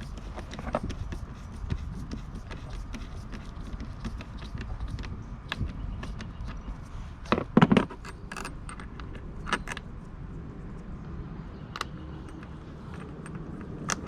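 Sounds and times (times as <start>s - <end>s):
metal hardware clinking: 7.3s - 9.8s.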